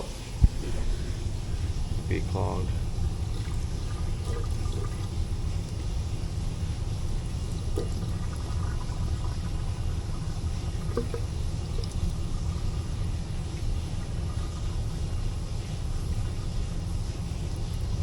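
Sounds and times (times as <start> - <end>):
steady low rumble: 0.0 - 18.0
water pouring into drain line: 0.0 - 18.0.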